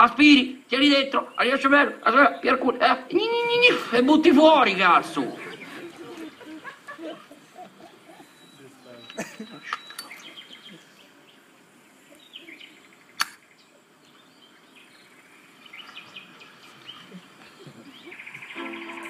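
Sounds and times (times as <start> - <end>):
faint bird chirps: 5.1 - 19.0
sharp click: 13.2 - 13.4.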